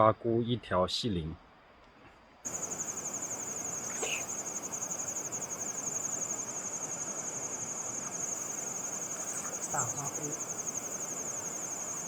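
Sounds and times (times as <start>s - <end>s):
even hiss: 2.5s - 12.0s
insects trilling: 2.5s - 12.0s.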